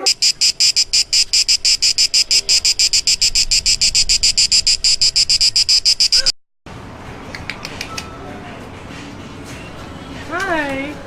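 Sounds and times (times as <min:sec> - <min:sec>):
insect fast pulsing song: 0:00.0 - 0:06.3.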